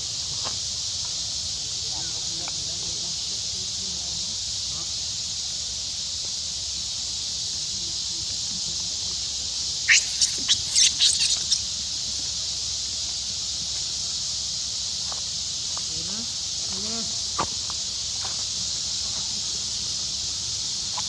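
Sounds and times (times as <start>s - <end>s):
high-pitched animal squeaks: 9.9s - 11.6s.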